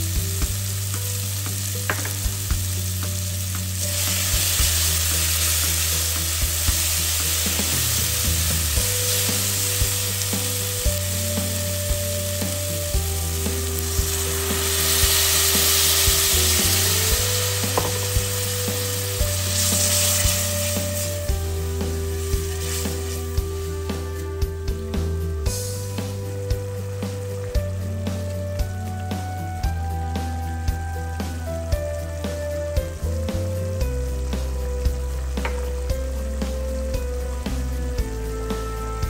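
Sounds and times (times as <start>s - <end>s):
curry base sizzling in oil: 0.0s - 39.0s
soft background music: 0.0s - 39.0s.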